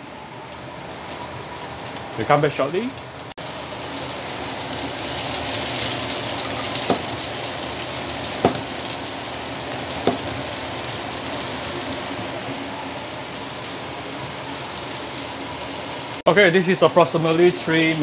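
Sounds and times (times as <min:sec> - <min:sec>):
prawns sizzling in a frying pan: 0:00.5 - 0:18.0
sharp knocks: 0:06.8 - 0:07.2, 0:08.4 - 0:08.8, 0:10.0 - 0:10.3.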